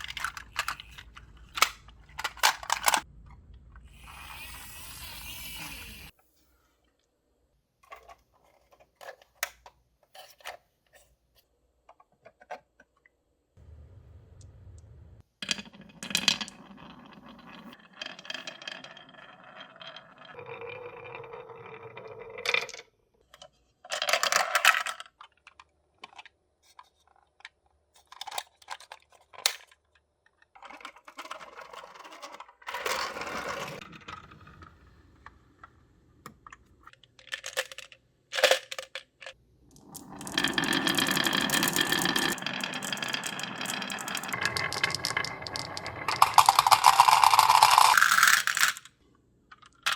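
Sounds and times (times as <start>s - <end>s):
marbles clacking on track pieces: 15.4s - 22.8s, 39.8s - 48.9s
marbles rolling on wooden track: 15.4s - 22.9s, 30.8s - 35.4s, 39.8s - 48.8s.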